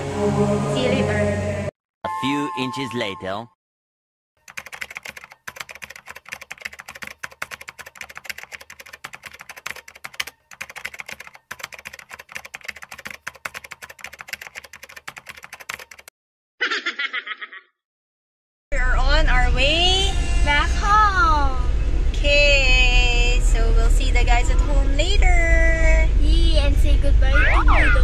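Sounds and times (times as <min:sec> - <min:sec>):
short pitched sound effect: 0:00.0 - 0:02.7, 0:27.2 - 0:28.0
rapid keyboard typing: 0:04.4 - 0:16.1.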